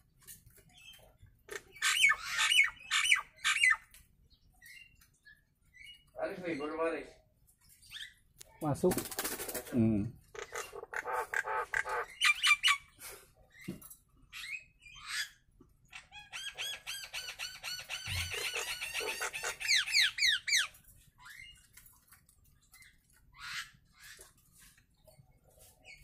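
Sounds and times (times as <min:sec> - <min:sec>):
rapid chattering bird notes: 0:08.7 - 0:12.8
bird calling: 0:10.3 - 0:13.0, 0:16.0 - 0:20.7.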